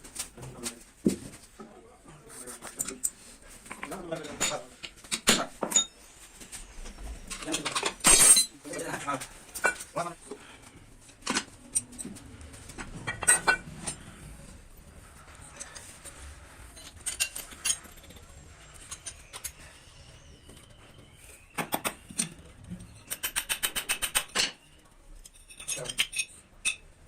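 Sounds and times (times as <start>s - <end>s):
metal tools clinking and knocking: 2.7s - 6.2s, 7.3s - 10.2s, 11.2s - 14.2s, 16.7s - 19.8s, 21.5s - 26.9s.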